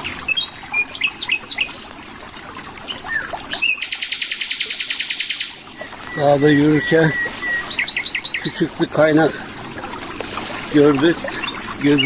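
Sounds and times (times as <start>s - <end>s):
trickle of water: 0.0s - 12.0s
songbirds chirping and whistling: 0.1s - 1.9s, 2.8s - 8.6s, 10.8s - 12.0s.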